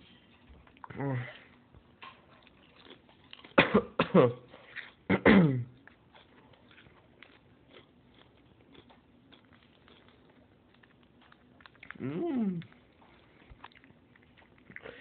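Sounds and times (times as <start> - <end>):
wordless human vocal sounds: 11.9 - 12.7.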